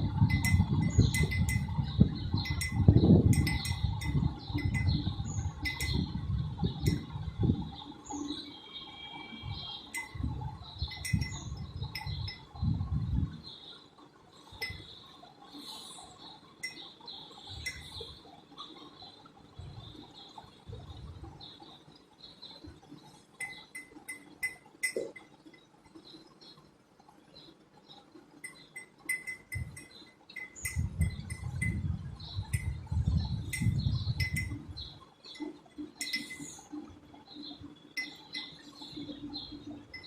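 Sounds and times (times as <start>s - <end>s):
light metallic clinks: 0.2s - 1.8s, 2.4s - 6.1s, 10.9s - 12.6s, 14.6s - 14.9s, 23.4s - 26.0s, 28.4s - 31.8s, 33.4s - 34.6s, 35.3s - 36.8s, 38.0s - 39.2s.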